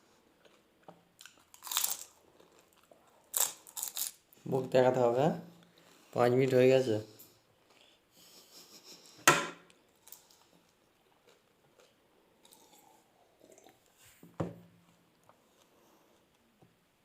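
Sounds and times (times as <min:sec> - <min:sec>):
soft chewing and mouth noises: 0:00.0 - 0:04.4, 0:07.1 - 0:08.3, 0:09.7 - 0:14.2, 0:14.8 - 0:16.8.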